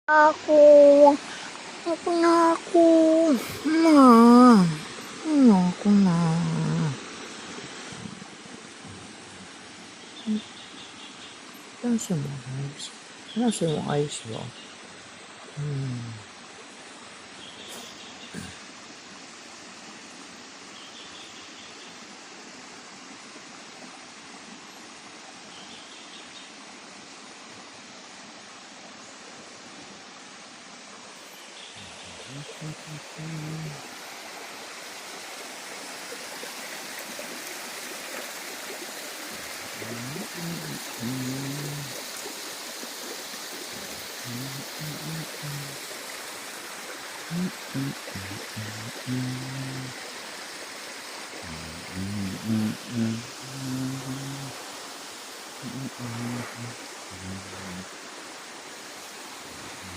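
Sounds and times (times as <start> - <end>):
stream water rushing: 0.1 - 59.9
faint bird chirps: 17.4 - 18.6.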